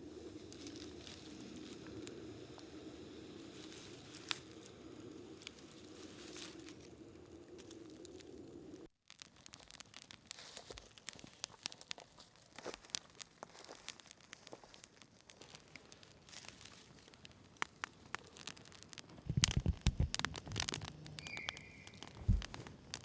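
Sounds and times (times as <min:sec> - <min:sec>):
campfire crackling: 0:00.0 - 0:23.0
rain patter: 0:00.0 - 0:23.0
rustling and dull knocks: 0:19.2 - 0:20.9, 0:22.0 - 0:22.7.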